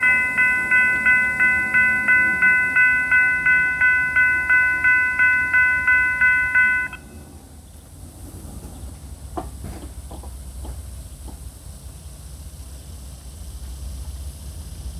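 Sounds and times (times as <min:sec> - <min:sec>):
railroad crossing bell ringing: 0:00.0 - 0:07.4.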